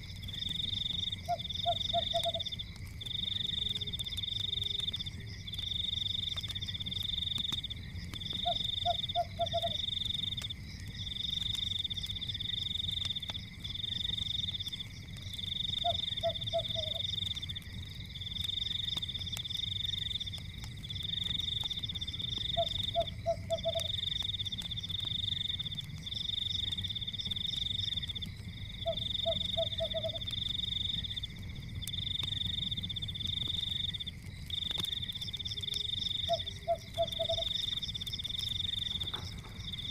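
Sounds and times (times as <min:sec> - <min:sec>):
fireplace crackles: 0:00.0 - 0:39.9
hum of calls: 0:35.7 - 0:37.6.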